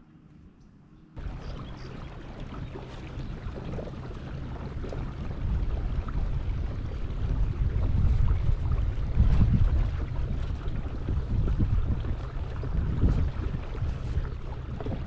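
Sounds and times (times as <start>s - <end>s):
lake water noise: 1.2s - 15.0s
wind rumbling on microphone: 1.2s - 15.0s.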